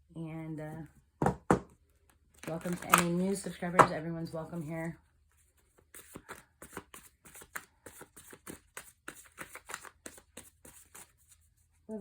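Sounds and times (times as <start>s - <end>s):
cards being shuffled: 2.4s - 3.6s, 5.5s - 11.4s.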